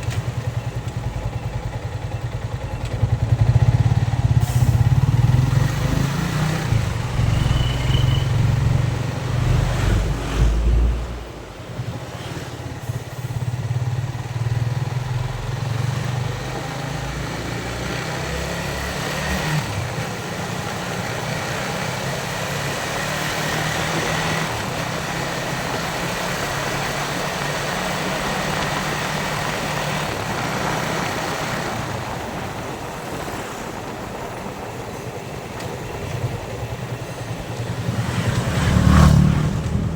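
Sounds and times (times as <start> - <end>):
motorcycle engine running: 0.0 - 9.0
wind and road noise: 0.0 - 39.9.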